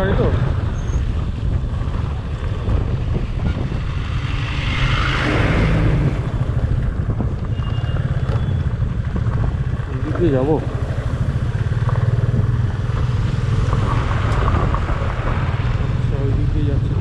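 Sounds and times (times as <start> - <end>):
rushing noise: 0.0 - 9.2
motorcycle engine rumbling: 0.0 - 17.0
wind buffeting microphone: 0.0 - 17.0.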